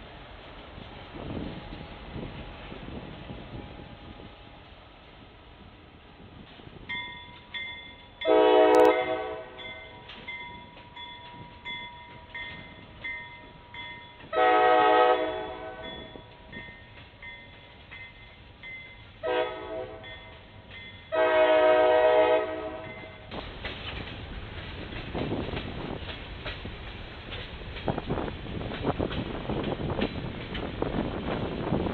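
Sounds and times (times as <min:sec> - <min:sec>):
train rumble: 0:00.0 - 0:31.9
locomotive air horn blasts: 0:08.2 - 0:09.6, 0:14.3 - 0:16.1, 0:19.2 - 0:20.2, 0:21.1 - 0:23.1.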